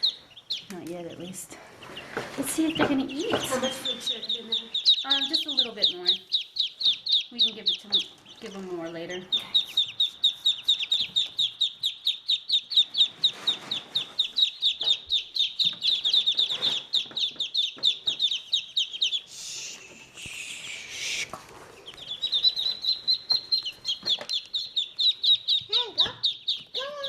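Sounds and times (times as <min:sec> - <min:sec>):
ducklings peeping: 0:00.0 - 0:27.0
rustling noise: 0:12.8 - 0:18.2, 0:21.1 - 0:24.6.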